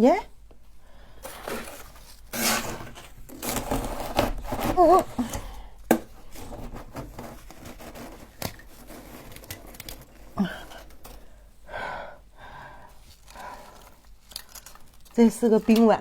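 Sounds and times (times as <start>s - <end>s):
utensil scraping ice: 1.2s - 5.5s, 6.2s - 11.3s.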